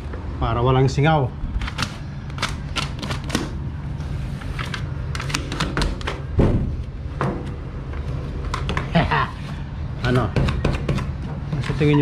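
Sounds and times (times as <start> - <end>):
steady low hum: 0.0 - 12.0
dull thump: 6.4 - 7.4.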